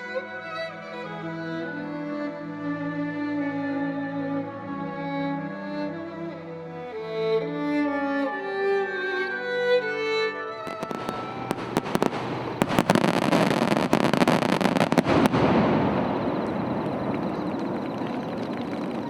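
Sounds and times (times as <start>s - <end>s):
violin and cello music: 0.0s - 15.0s
fireworks cracks and bangs: 10.7s - 17.8s.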